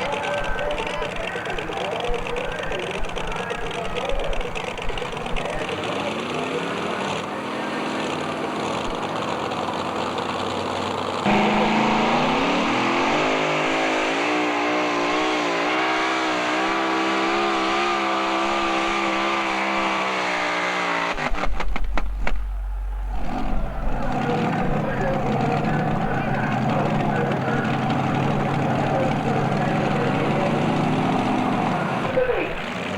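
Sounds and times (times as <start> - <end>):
truck engine revving at full throttle: 0.0 - 32.9
low hum: 21.2 - 32.6.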